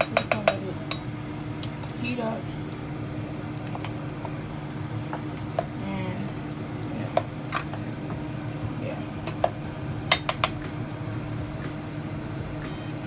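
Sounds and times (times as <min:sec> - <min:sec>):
thick sauce popping in a pot: 0:00.0 - 0:02.0, 0:02.6 - 0:10.6
steady low hum: 0:00.0 - 0:13.0.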